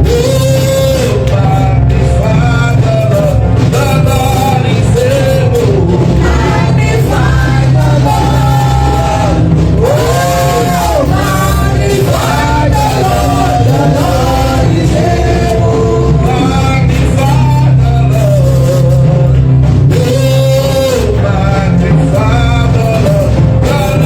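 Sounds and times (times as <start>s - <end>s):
band with steady bass line: 0.0s - 24.0s
person singing: 0.0s - 24.0s.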